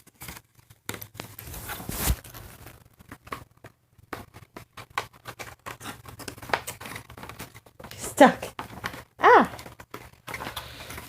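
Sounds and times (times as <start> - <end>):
cardboard and plastic packaging rustling: 0.0 - 11.0.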